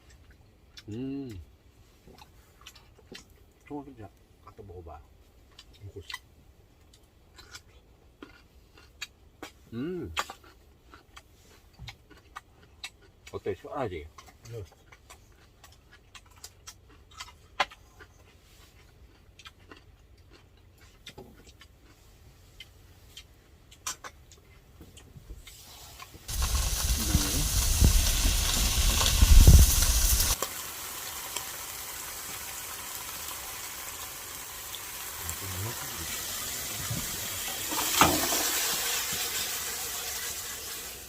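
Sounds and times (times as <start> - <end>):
camp stove cooking hiss: 25.5 - 41.0.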